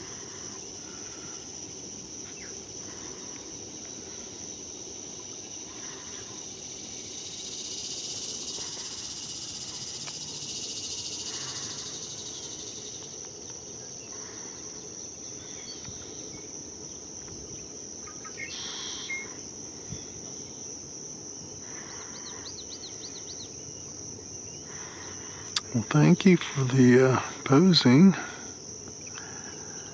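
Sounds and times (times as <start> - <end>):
high-pitched insect trilling: 0.0 - 29.9
bird calls: 18.0 - 19.4.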